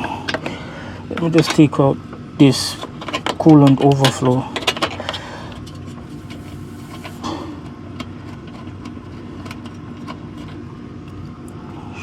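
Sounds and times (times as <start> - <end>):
low engine-like hum: 4.4 - 12.0.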